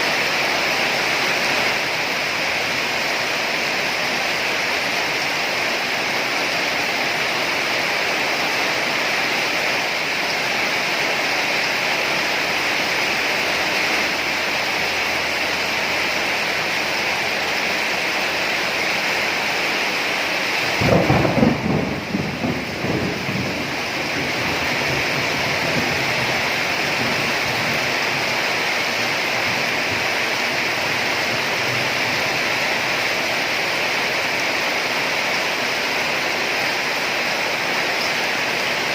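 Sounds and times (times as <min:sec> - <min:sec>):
heavy rain: 0:00.0 - 0:38.9
thunder crack and rumble: 0:20.6 - 0:28.4.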